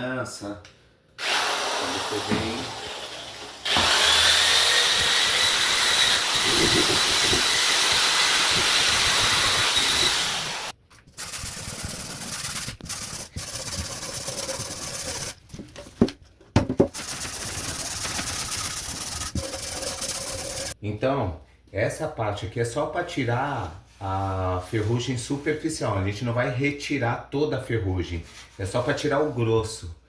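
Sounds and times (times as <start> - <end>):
drill with wire brush whining: 1.2 - 15.4, 16.9 - 20.8.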